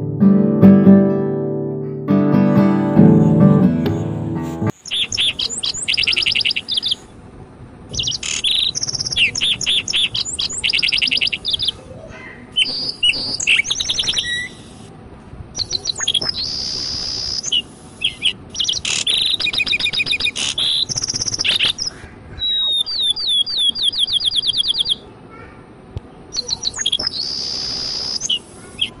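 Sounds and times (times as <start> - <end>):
bird chirping and trilling: 4.7 - 7.1, 7.9 - 14.8, 15.6 - 25.1, 26.3 - 29.0.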